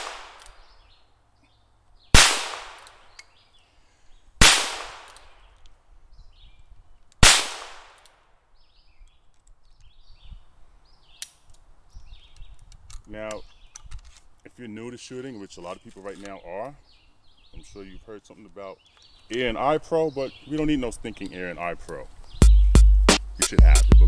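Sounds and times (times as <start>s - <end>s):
gunshots with echo: 0.0s - 0.4s, 2.2s - 2.8s, 4.4s - 5.1s.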